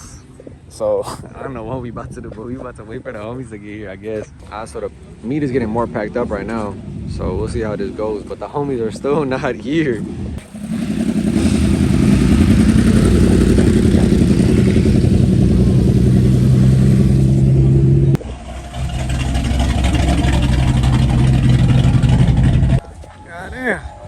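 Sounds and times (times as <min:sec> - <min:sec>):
loud car exhaust at high rev: 0:10.4 - 0:22.8.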